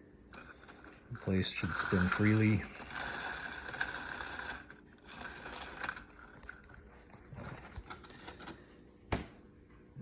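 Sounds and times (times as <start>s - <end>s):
gear train whirring with clicks: 0.3s - 6.8s.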